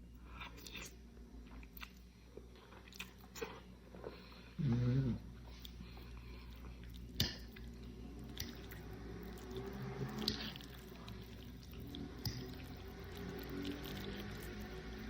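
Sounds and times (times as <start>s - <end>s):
wet chewing: 5.4s - 15.0s.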